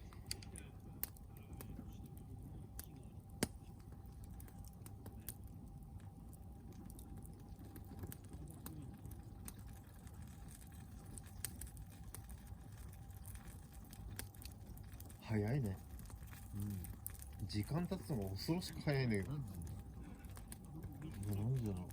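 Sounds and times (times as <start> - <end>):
log fire crackling and popping: 0.0 - 21.9
low rumble of flames: 0.0 - 21.9.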